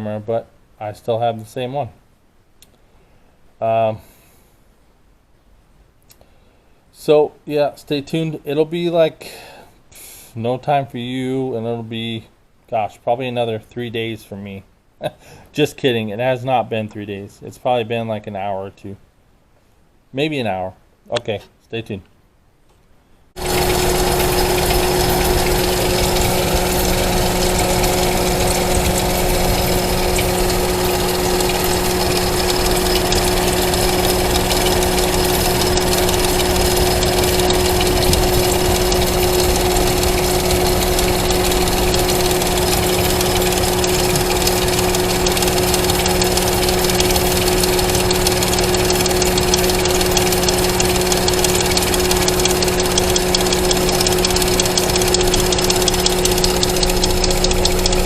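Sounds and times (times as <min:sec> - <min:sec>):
car engine idling rough: 0:23.4 - 0:58.0.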